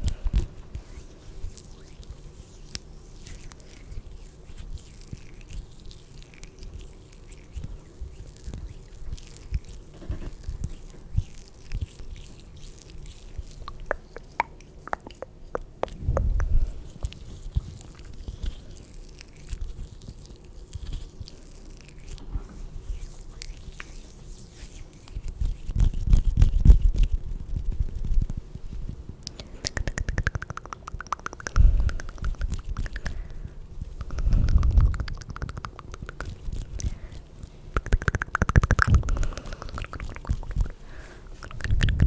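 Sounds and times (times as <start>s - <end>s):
wet mouth clicks and pops: 13.4s - 18.5s, 29.2s - 37.1s, 37.7s - 42.0s
low rubbing rumble: 15.8s - 18.6s, 31.4s - 35.6s.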